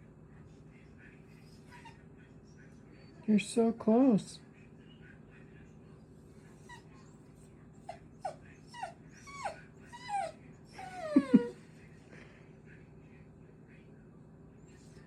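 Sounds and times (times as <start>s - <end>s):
small dog whining: 1.5s - 2.0s, 6.5s - 11.6s.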